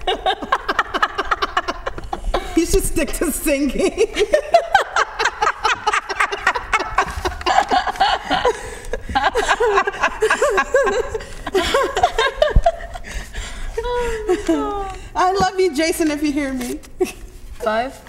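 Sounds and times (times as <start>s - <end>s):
people laughing: 0.0s - 15.0s.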